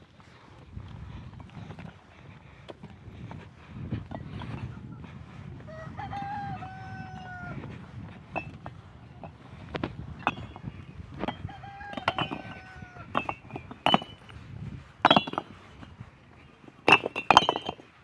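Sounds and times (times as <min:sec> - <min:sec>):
rooster crowing: 0:05.7 - 0:07.7, 0:11.4 - 0:13.2
metal tools clinking on stone: 0:10.2 - 0:14.3, 0:15.0 - 0:15.5, 0:16.9 - 0:17.9.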